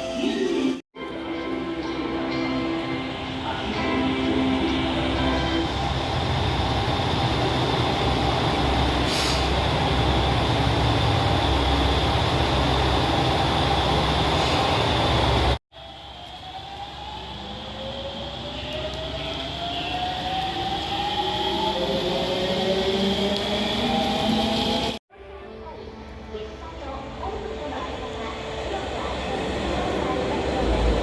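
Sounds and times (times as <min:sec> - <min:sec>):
train whine rising in pitch: 0:01.2 - 0:25.0
train rumbling past: 0:26.4 - 0:31.0.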